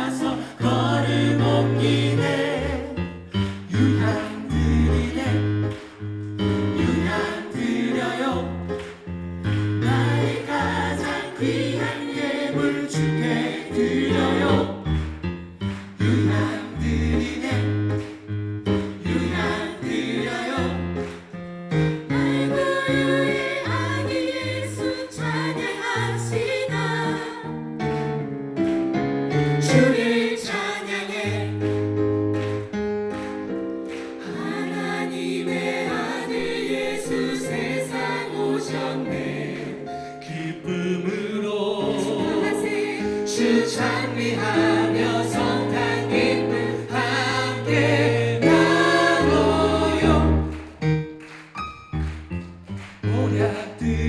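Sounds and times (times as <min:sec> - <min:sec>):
choir singing gospel: 0:00.0 - 0:51.2, 0:53.0 - 0:54.0
instrumental accompaniment: 0:00.8 - 0:30.7, 0:31.5 - 0:40.7, 0:41.9 - 0:53.8.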